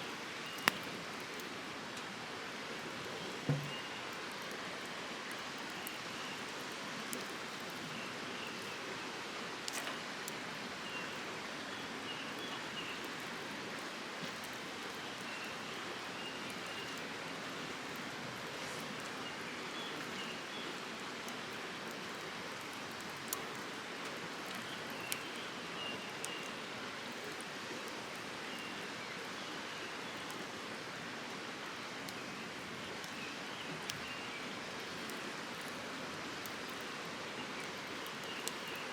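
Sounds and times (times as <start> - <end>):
campfire crackling and popping: 0.1 - 8.8, 12.3 - 38.9.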